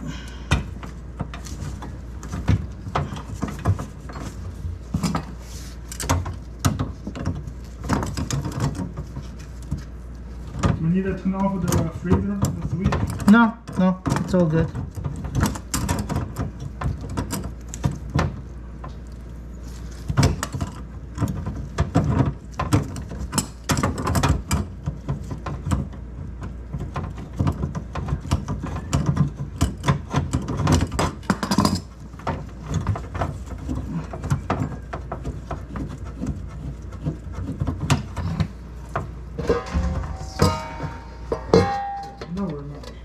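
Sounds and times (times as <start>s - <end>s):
tools clicking and knocking on fittings: 0.0s - 19.2s, 20.0s - 43.0s
steady low hum: 0.0s - 24.0s, 24.6s - 43.0s.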